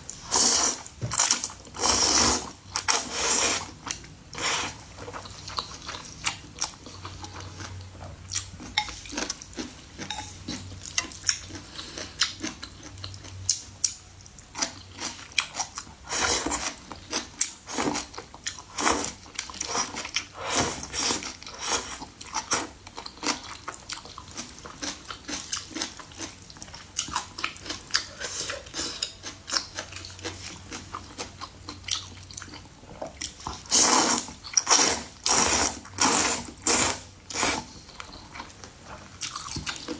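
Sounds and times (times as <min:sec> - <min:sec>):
wet chewing sounds: 0:20.9 - 0:39.9.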